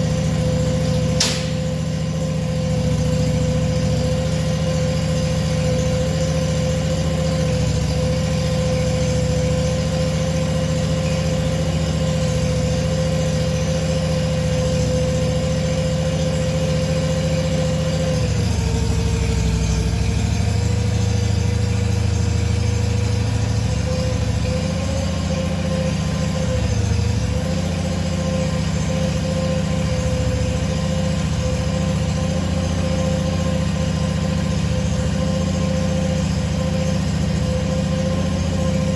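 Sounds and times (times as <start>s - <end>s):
tractor engine idling: 0.0s - 38.9s.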